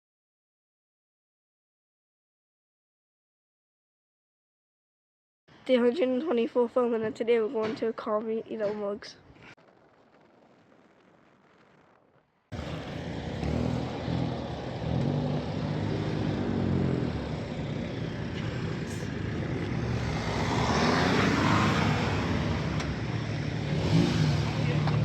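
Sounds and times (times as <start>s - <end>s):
car engine accelerating: 12.5s - 25.0s
road and wind noise: 12.5s - 25.0s.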